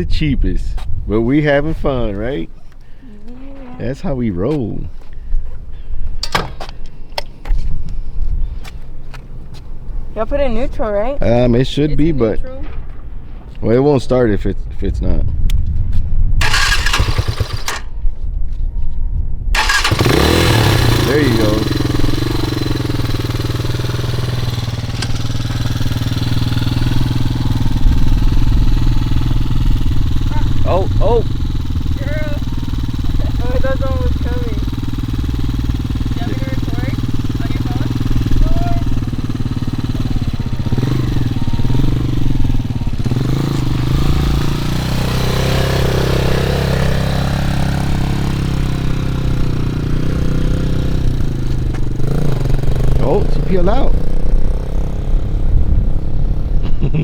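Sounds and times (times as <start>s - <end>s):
dirt bike engine idling: 16.4s - 18.0s, 19.6s - 57.0s.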